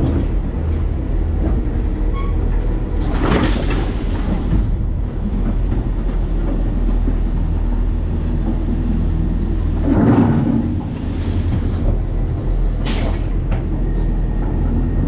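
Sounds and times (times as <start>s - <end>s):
garbage truck rumbling: 0.0s - 15.0s.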